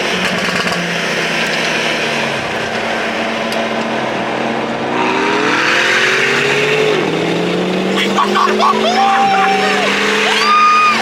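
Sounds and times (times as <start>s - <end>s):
car engine accelerating: 0.0s - 11.0s
wind and road noise: 0.0s - 11.0s.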